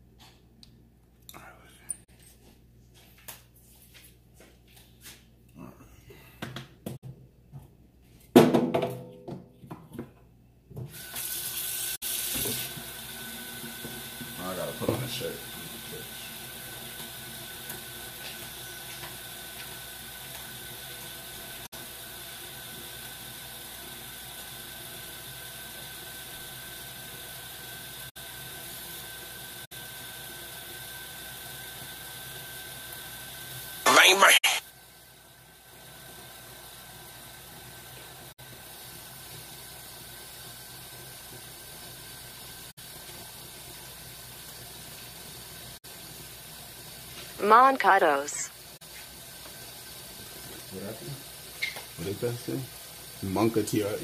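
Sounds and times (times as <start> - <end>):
faucet water running into sink: 10.9 - 33.8, 35.6 - 47.7, 48.5 - 54.0.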